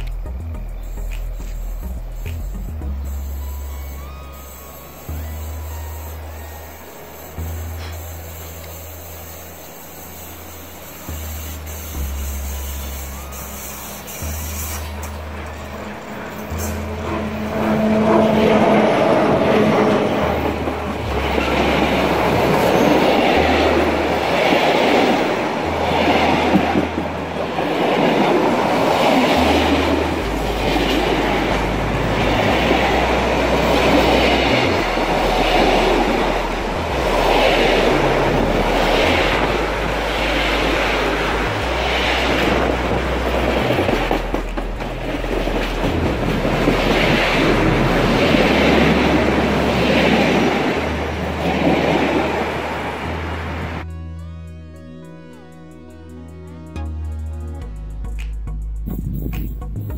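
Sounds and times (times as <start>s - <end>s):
wheel on rail rumble: 0.0s - 53.9s
clickety-clack over rail joints: 14.3s - 52.6s.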